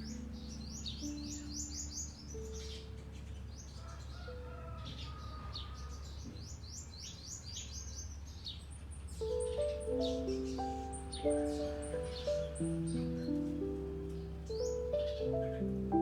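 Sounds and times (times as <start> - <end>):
soft music notes: 0.0 - 3.5, 9.2 - 16.0
small bird chirping: 0.0 - 16.0.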